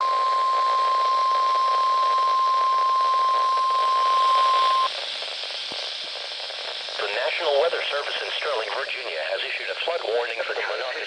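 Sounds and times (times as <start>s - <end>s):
steady alarm beep: 0.0s - 4.9s
radio hiss: 0.0s - 11.0s.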